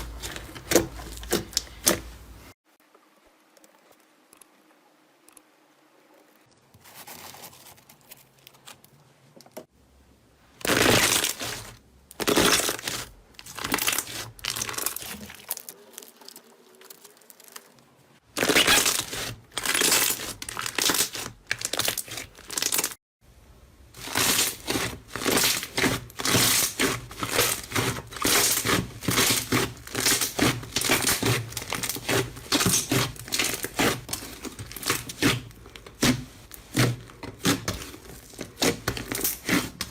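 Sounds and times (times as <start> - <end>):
slime squishing: 10.6 - 23.0, 24.0 - 39.9.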